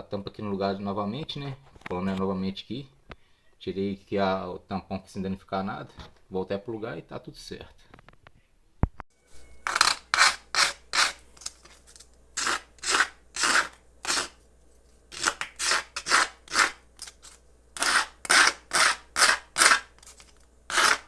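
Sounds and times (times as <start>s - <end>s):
steady low hum: 9.2s - 21.0s
scratchy hand tool strokes: 9.3s - 21.0s.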